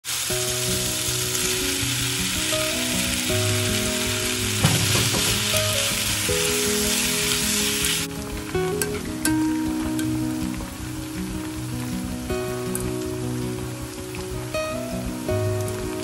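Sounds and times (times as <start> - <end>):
meat sizzling in hot oil: 0.0 - 16.0
soft background music: 0.1 - 16.0
chopsticks knocking on pan: 4.6 - 5.8.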